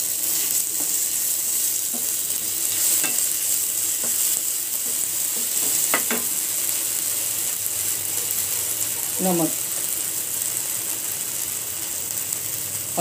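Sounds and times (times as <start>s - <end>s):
onions sizzling in hot oil: 0.0s - 13.0s
spatula scraping and tapping pan: 1.8s - 3.4s, 4.0s - 6.4s.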